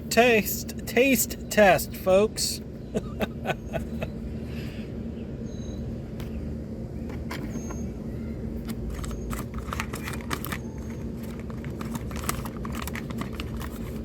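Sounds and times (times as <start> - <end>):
low background hum: 0.0 - 14.0
plastic pouch crinkling: 8.7 - 14.0.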